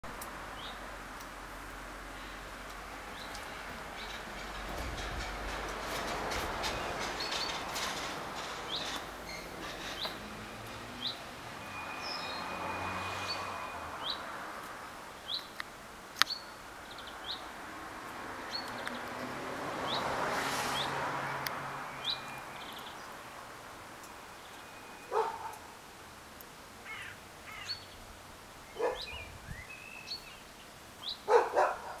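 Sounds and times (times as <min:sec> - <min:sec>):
dog barking: 0:25.1 - 0:25.6, 0:28.8 - 0:29.2, 0:31.3 - 0:32.0.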